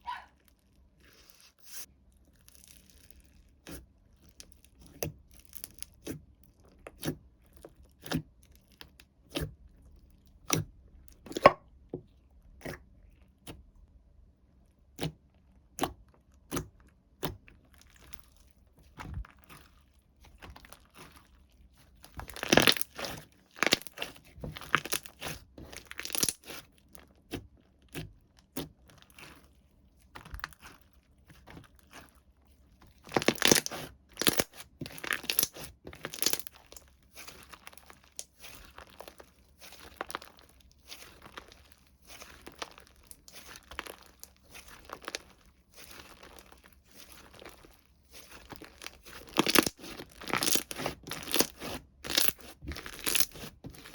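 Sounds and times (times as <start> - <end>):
plastic and paper packaging crinkling: 33.0 - 53.9.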